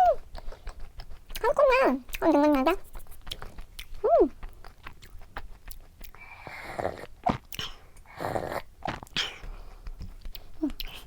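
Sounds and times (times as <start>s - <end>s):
chewing soft cookie: 0.0s - 11.0s
wet mouth clicks: 2.1s - 8.1s, 8.8s - 11.0s.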